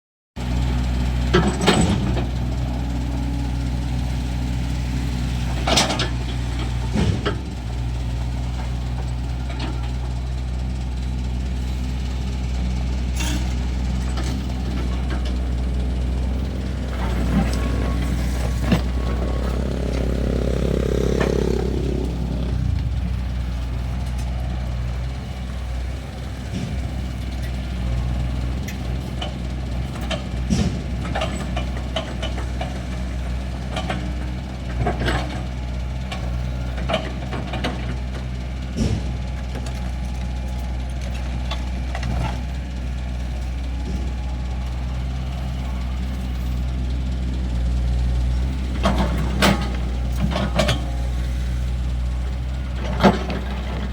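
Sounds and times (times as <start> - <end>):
excavator diesel engine running: 0.4 - 53.9.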